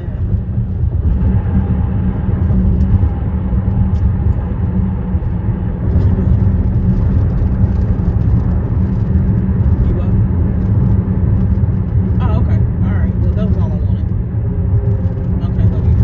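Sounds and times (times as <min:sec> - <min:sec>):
car tyres on concrete bridge: 0:00.0 - 0:16.0.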